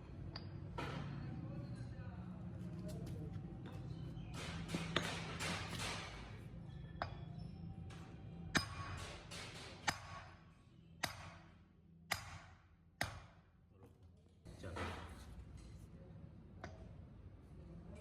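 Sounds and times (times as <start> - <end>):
sharp metallic taps: 3.7 - 6.4.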